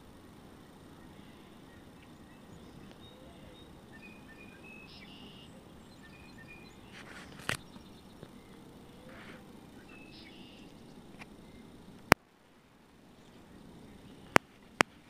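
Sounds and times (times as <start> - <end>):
steady low rumble: 0.0 - 15.0
high-pitched bird chirps: 2.1 - 7.0, 7.6 - 10.9.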